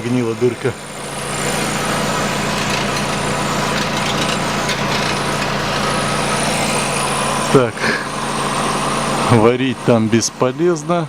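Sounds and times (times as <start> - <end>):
car engine idling: 0.0 - 11.0
exhaust heat shield rattling: 1.3 - 8.5.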